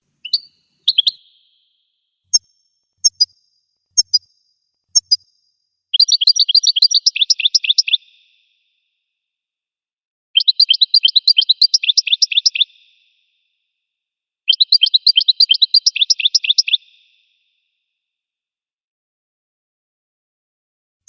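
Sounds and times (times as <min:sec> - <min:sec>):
finch song: 0:00.0 - 0:09.3, 0:10.4 - 0:13.8, 0:14.5 - 0:17.9.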